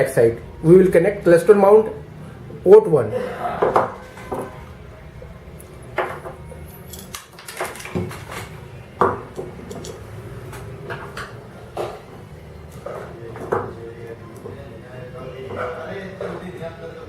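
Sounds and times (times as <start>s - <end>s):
metal parts clinking: 6.6s - 8.0s, 9.6s - 10.0s.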